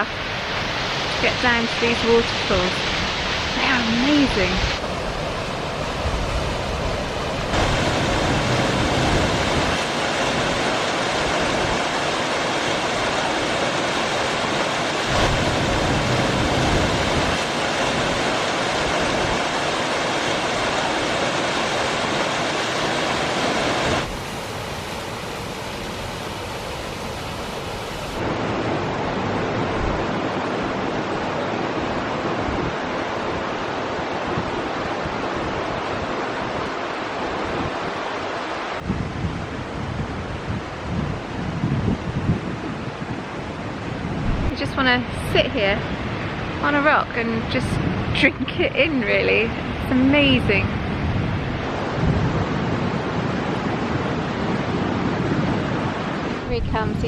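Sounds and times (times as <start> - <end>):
waterfall rushing over rocks: 0.0 - 38.9.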